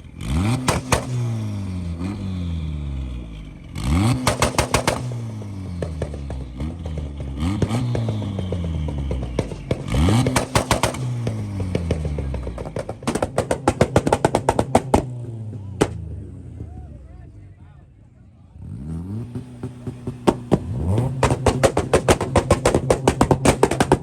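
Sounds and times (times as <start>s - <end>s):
car engine revving: 0.0s - 24.0s
exhaust pops and bangs: 0.3s - 2.2s, 3.9s - 16.3s, 19.2s - 24.0s.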